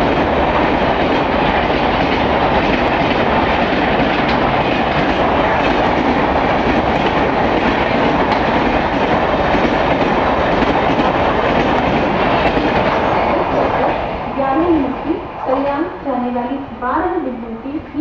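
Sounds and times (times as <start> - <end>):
carriages clickety-clack: 0.0 - 14.1
train wheels rushing on rails: 0.0 - 16.4.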